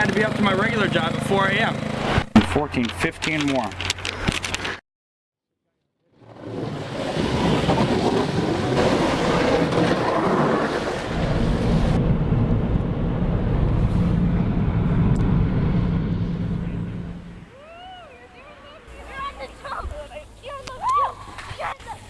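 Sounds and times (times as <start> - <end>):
vehicle engine rumble: 6.3 - 21.7
steady low hum: 11.2 - 17.6.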